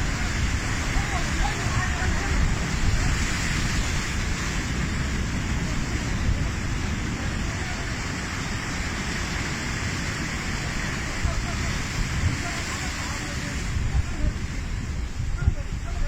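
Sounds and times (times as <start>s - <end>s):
heavy sea rushing: 0.0s - 16.0s
wind rumbling on microphone: 0.0s - 16.0s.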